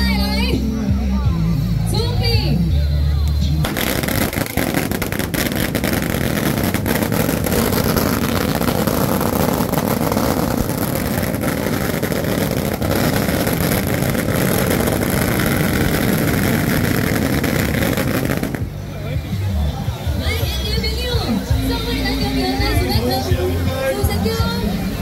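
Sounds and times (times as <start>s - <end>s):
fireworks roaring and crackling: 3.6s - 19.7s.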